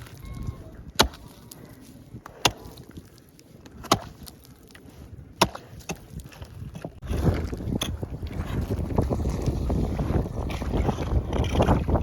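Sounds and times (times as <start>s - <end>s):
ice being chopped: 3.8s - 4.3s.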